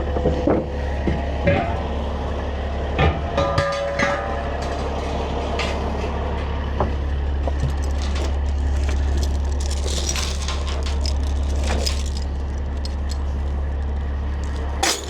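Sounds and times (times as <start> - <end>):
truck engine idling: 4.3 - 15.0
knocks and clanks: 6.8 - 13.4, 14.4 - 15.0.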